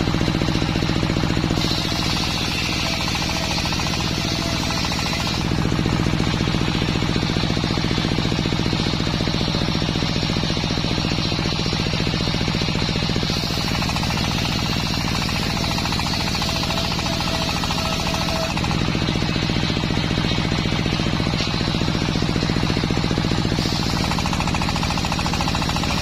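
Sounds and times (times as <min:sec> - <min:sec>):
sawmill engine running: 0:00.0 - 0:26.0.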